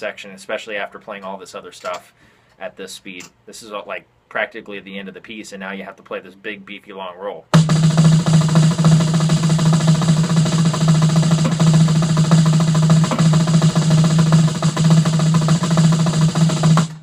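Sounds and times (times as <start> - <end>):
snare drum roll: 7.5 - 17.0.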